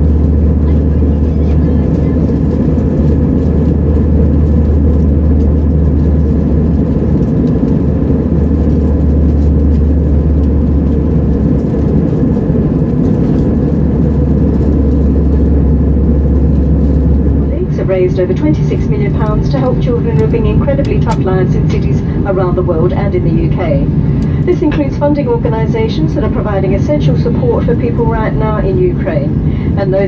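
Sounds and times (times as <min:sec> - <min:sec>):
airflow over fuselage: 0:00.0 - 0:30.0
faint steady whine: 0:00.0 - 0:30.0
jet engine drone in cabin: 0:00.0 - 0:30.0.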